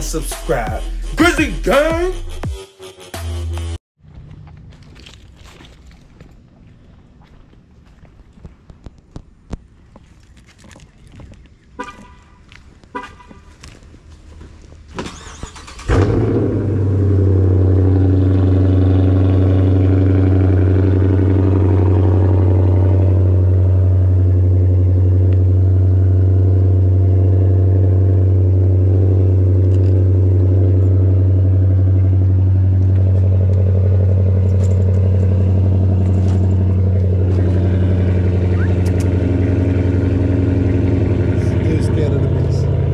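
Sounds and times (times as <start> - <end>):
car engine starting and idling: 14.9 - 42.9.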